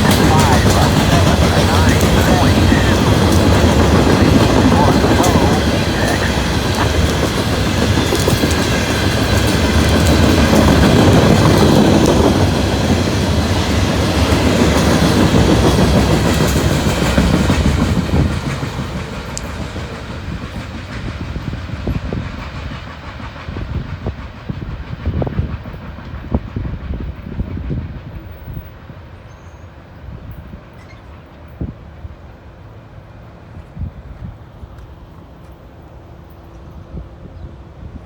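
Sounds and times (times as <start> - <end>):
sharp ticks: 0.0 - 12.6
wheels clickety-clack: 0.0 - 29.0
train passing: 0.0 - 38.0.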